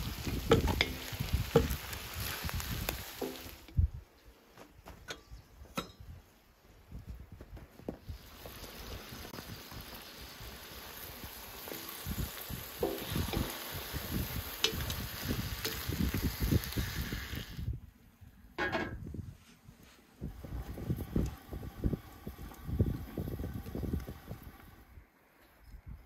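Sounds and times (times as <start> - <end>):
food sizzling on griddle pan: 0.0 - 3.7, 8.0 - 17.7, 20.2 - 24.8.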